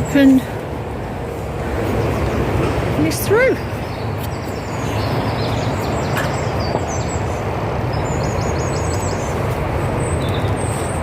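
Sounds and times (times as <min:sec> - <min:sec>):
small bird chirping: 0:03.1 - 0:10.8.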